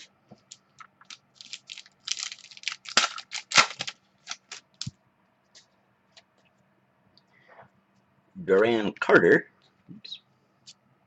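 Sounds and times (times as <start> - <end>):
card packaging clicks and crinkles: 0.4 - 4.9.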